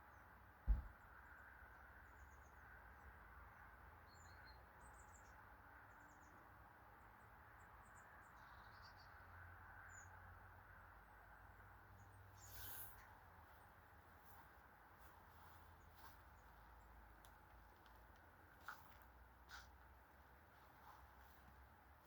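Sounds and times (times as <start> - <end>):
low thump: 0.7 - 1.0.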